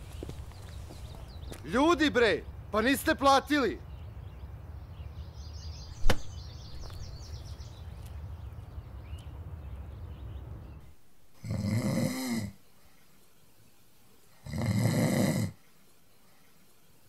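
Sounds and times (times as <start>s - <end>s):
low street hum: 0.0s - 11.3s
sharp knock: 6.0s - 6.4s
man snoring: 11.4s - 12.6s, 14.4s - 15.6s.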